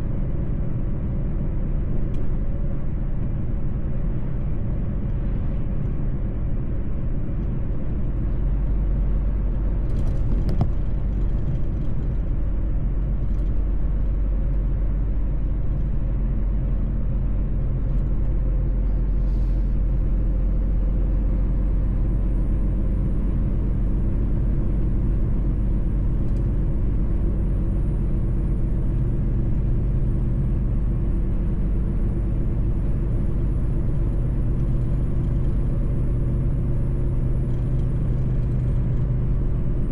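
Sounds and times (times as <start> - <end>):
road rumble: 0.0 - 39.9
truck engine drone: 0.0 - 39.9.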